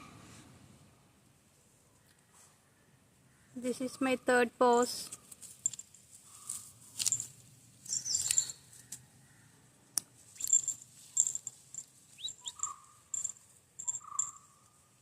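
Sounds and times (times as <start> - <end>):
birds and insects chirping: 5.6 - 15.0.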